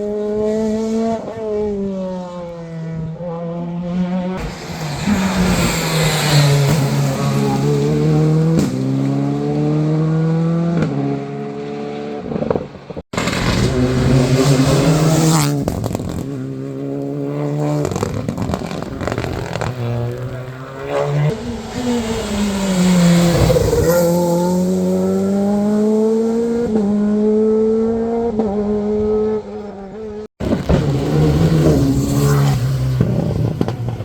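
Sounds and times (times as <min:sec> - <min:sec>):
rally cars accelerating hard: 0:00.0 - 0:34.0.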